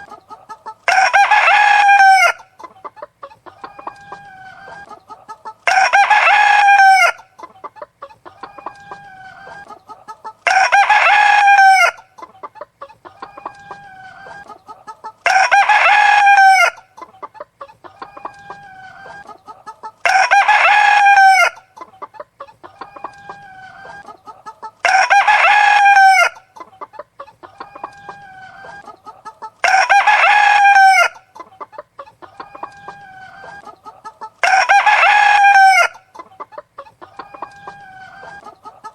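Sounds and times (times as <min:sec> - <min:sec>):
chicken clucking: 0:00.0 - 0:38.9
rooster crowing: 0:00.9 - 0:02.4, 0:05.6 - 0:07.2, 0:10.4 - 0:12.0, 0:15.3 - 0:16.8, 0:20.0 - 0:21.6, 0:24.8 - 0:26.4, 0:29.6 - 0:31.2, 0:34.4 - 0:36.0.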